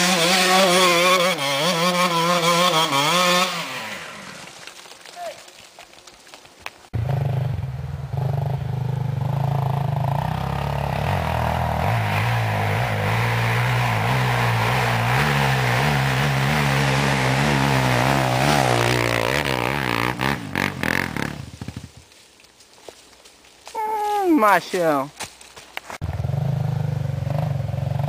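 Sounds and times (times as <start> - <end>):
dirt bike engine running hard: 7.0 - 21.9.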